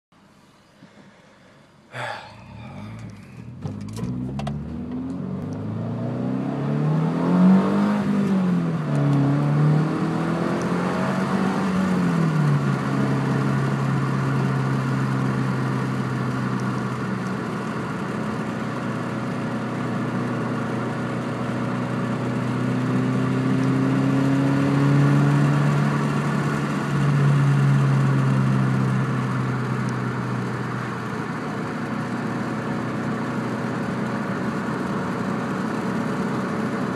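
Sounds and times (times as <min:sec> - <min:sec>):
car engine revving and idling: 0:00.8 - 0:36.9.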